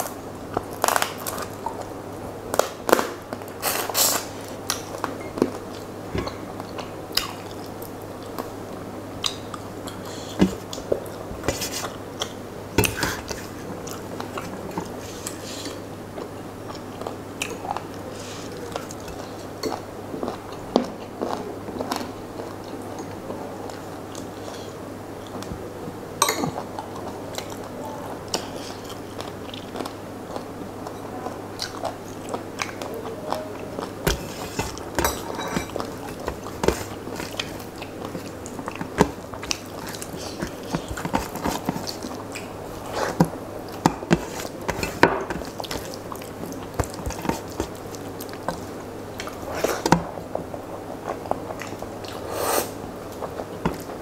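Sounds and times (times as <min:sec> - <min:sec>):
man chewing with wet smacks: 0:00.0 - 0:25.7, 0:26.4 - 0:54.0
steady low hum: 0:00.0 - 0:54.0
rice mashed by hand on plate: 0:34.0 - 0:50.0.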